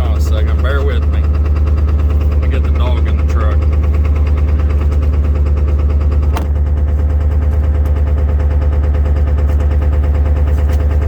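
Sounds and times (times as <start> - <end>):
diesel engine idling clatter: 0.0 - 11.0
sharp engine knock: 3.7 - 11.0.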